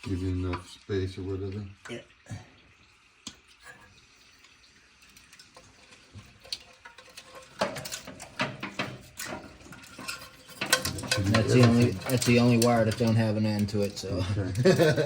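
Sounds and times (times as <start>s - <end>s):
metal tools clicking and clinking: 6.4s - 15.0s.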